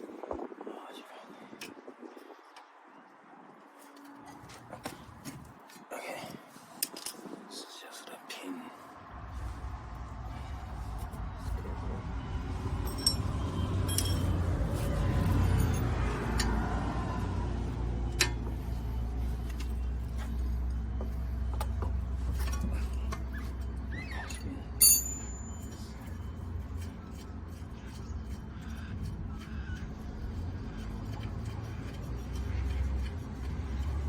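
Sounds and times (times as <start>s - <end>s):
hand tools and metal parts clinking: 6.6s - 7.4s, 12.7s - 16.8s, 21.5s - 28.4s
steady low rumble: 9.0s - 23.1s.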